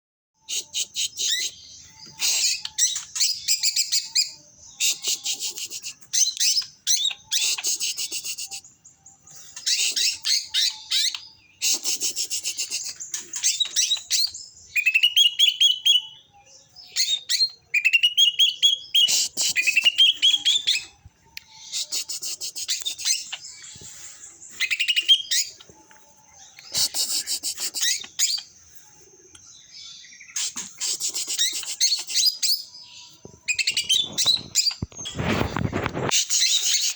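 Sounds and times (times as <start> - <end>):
songbird trilling: 9.5 - 28.5, 33.5 - 36.9.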